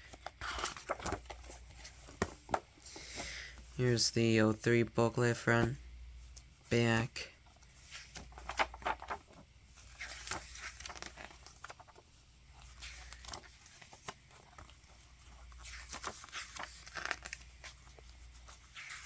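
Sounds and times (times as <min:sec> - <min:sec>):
paper pages rustling: 0:00.0 - 0:04.0, 0:07.5 - 0:19.0.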